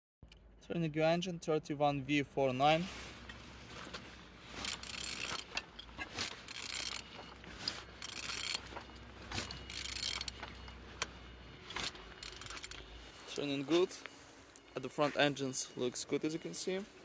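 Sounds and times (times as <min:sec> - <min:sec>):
engine turned over by hand: 0:03.3 - 0:12.9
mechanical clicks: 0:04.6 - 0:07.0, 0:08.0 - 0:08.7, 0:09.4 - 0:11.1, 0:11.7 - 0:12.8.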